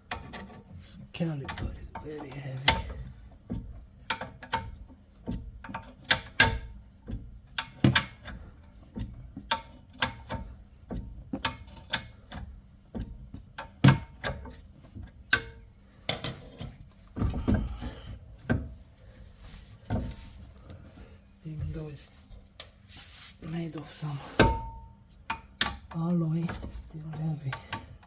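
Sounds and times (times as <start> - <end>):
metal clicks and knocks: 0.0 - 18.8, 24.4 - 28.0.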